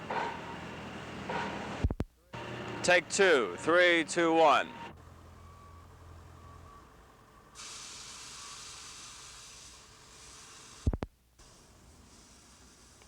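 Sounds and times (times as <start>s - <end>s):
recording hiss: 7.5s - 13.0s.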